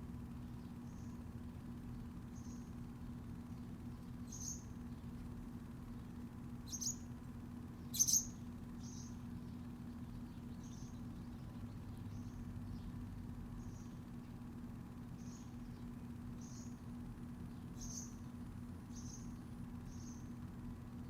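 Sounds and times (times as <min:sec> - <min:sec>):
steady low hum: 0:00.0 - 0:21.0
high bird chirps: 0:06.7 - 0:07.0, 0:07.9 - 0:09.2.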